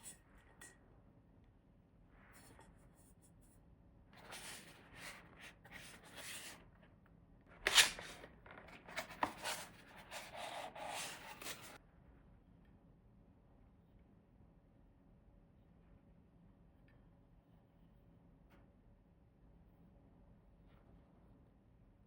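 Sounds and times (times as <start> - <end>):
rubbing and rustling: 4.2 - 6.7, 7.5 - 11.8.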